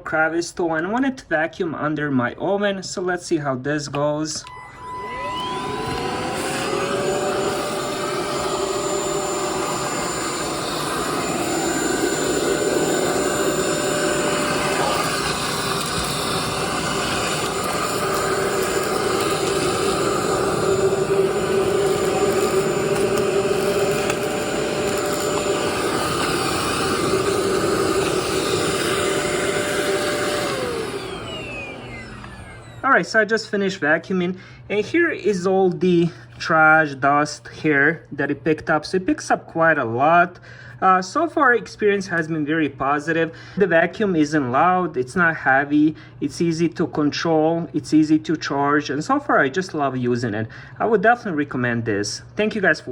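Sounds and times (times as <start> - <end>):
vacuum cleaner running: 4.4 - 33.3.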